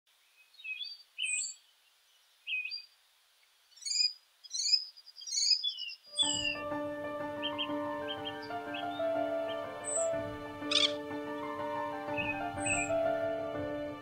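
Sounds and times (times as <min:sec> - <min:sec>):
birds chirping and singing: 0:00.3 - 0:03.0, 0:03.7 - 0:14.0
low sustained music score: 0:06.1 - 0:14.0.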